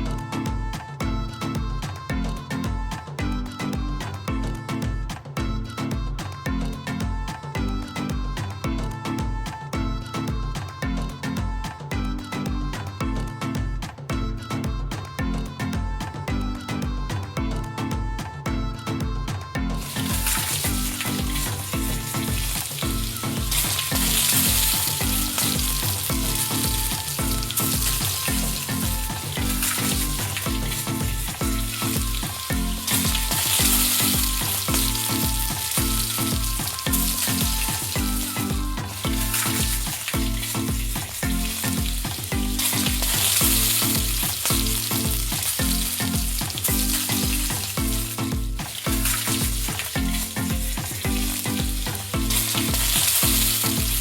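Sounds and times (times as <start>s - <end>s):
repeating background music: 0.0s - 54.0s
hot oil sizzling: 19.8s - 54.0s.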